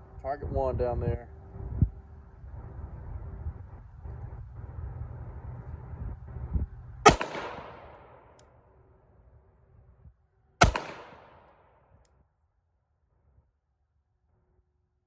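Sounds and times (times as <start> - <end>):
pistol shots with echo: 7.1 - 8.4, 10.6 - 11.7.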